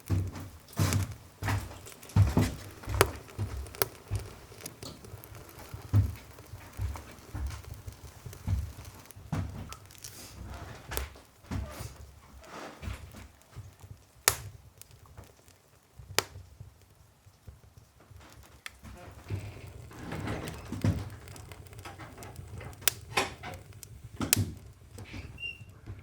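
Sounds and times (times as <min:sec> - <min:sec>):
sharp fire pops: 0:00.0 - 0:26.0
soft rustling and knocks: 0:00.0 - 0:26.0
wood fire crackling: 0:00.0 - 0:26.0.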